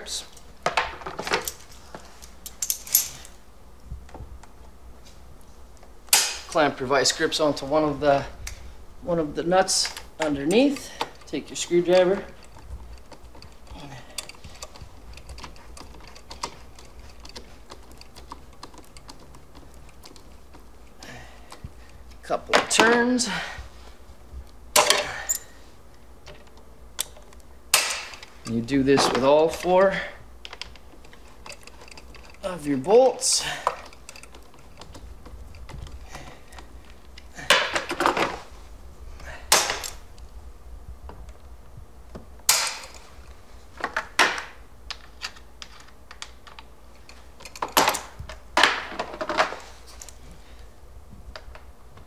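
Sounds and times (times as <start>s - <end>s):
screwdriver clicking on a bolt: 9.8s - 20.7s, 30.4s - 32.5s
clattering metal and plastic: 43.8s - 50.1s.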